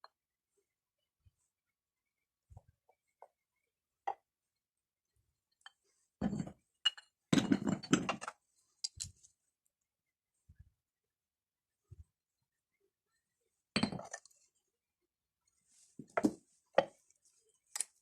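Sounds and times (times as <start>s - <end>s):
stones clinking together: 13.8s - 14.3s.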